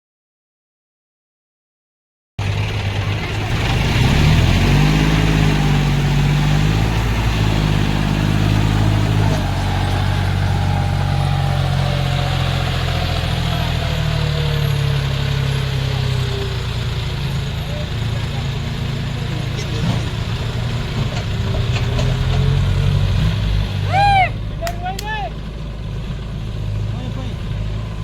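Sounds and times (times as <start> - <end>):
tractor diesel engine revving: 2.4 - 28.0.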